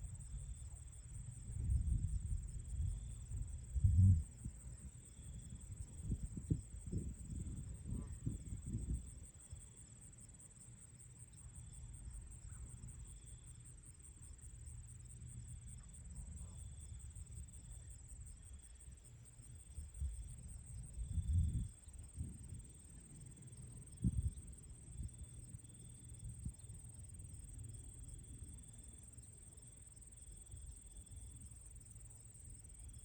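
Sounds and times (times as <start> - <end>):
insect chirping: 0.0 - 33.0
crickets trilling: 0.1 - 33.0
wind rumbling on microphone: 0.2 - 9.4, 19.7 - 22.8, 23.9 - 25.2.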